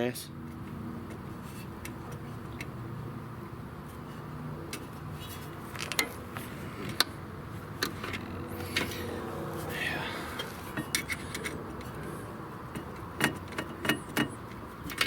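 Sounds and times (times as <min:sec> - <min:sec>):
metal parts and tools clicking: 0:10.4 - 0:12.0.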